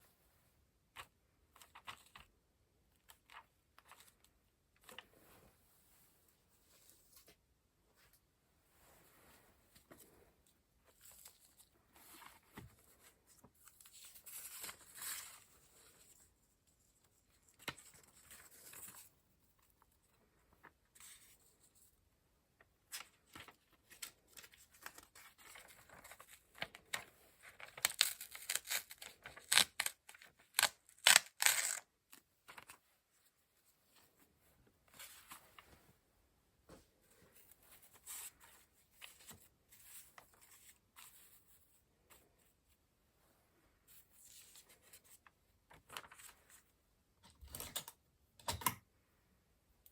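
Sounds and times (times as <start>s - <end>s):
paper and card rustling: 9.7s - 16.3s, 22.9s - 33.0s, 43.9s - 46.7s
crisp paper crackles: 44.2s - 46.7s.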